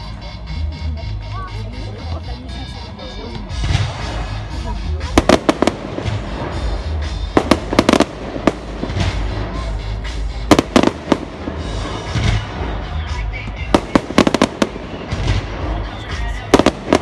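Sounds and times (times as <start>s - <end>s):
fireworks bursting: 3.5s - 17.0s.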